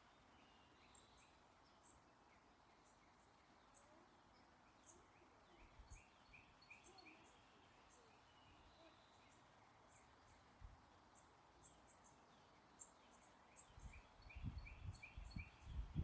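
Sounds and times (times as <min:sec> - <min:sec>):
soft outdoor hiss: 0:00.0 - 0:16.0
small birds chirping: 0:00.1 - 0:16.0
wind gust on microphone: 0:14.4 - 0:16.0.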